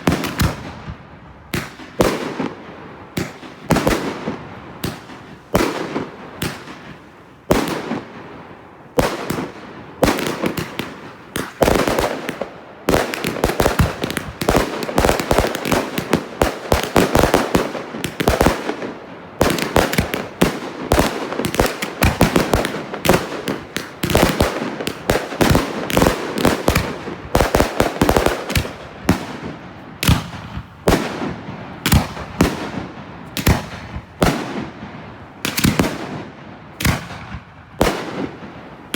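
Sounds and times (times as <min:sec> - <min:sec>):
fireworks banging: 0:08.9 - 0:38.5.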